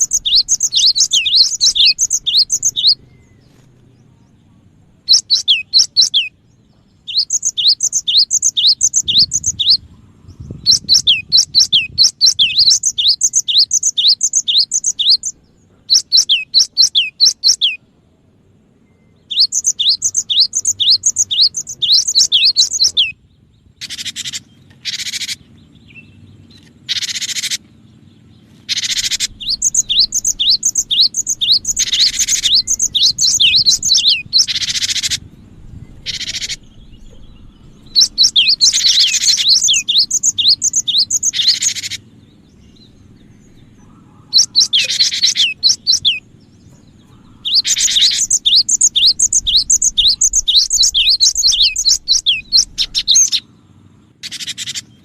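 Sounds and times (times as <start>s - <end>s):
bird calling high quick notes: 0.0s - 3.6s, 19.3s - 23.2s, 28.6s - 35.2s, 36.0s - 42.1s, 43.9s - 46.2s, 47.0s - 53.4s
harsh rasping bird calls: 0.0s - 55.0s.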